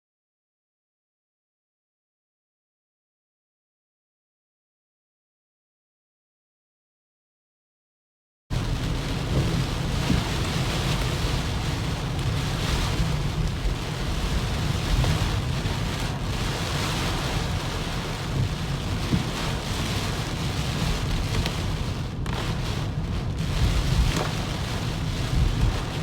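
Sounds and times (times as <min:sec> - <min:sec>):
deep continuous rumble: 0:08.5 - 0:26.0
heavy rain hissing: 0:08.6 - 0:26.0.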